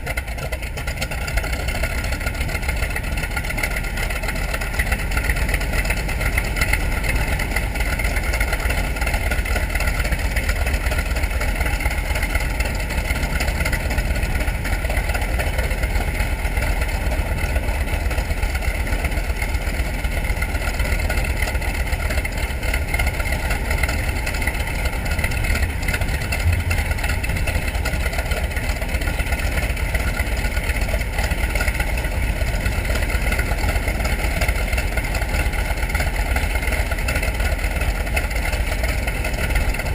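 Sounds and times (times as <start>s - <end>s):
radial aircraft engine running: 0.0s - 39.9s.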